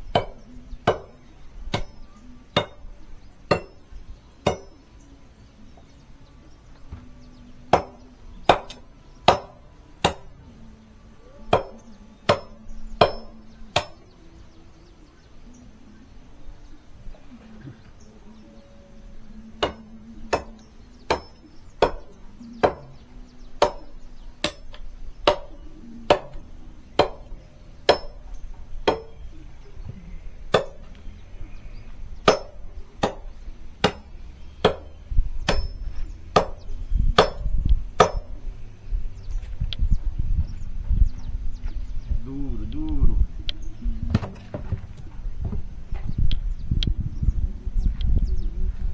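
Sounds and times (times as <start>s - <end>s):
axe chopping wooden log: 0.2s - 1.2s, 7.7s - 10.3s, 11.5s - 14.0s, 20.4s - 23.0s, 23.6s - 25.5s, 26.1s - 26.4s, 27.0s - 27.3s, 30.5s - 30.9s, 32.2s - 38.4s.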